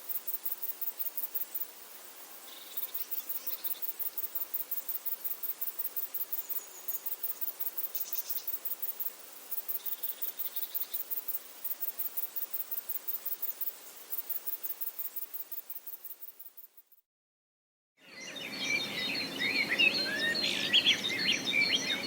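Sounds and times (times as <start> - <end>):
cricket chirping close up: 0.0 - 17.0
faint cricket trills: 0.0 - 17.0.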